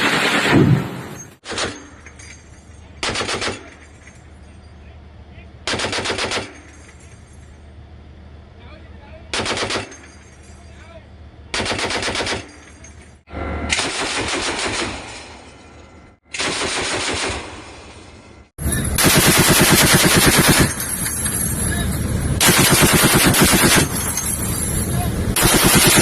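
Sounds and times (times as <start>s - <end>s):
machine-gun fire: 0.0s - 1.7s, 3.0s - 3.6s, 5.7s - 6.6s, 9.3s - 10.0s, 11.5s - 12.5s, 13.7s - 15.4s, 16.3s - 18.0s, 19.0s - 20.8s, 22.4s - 24.1s, 25.3s - 26.0s.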